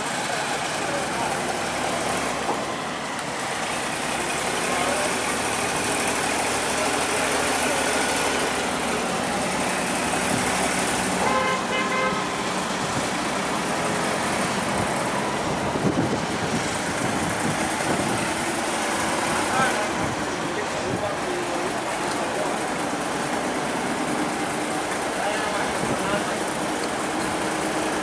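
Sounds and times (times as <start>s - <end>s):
engine running: 0.0s - 28.0s
horn sounding: 11.1s - 12.5s.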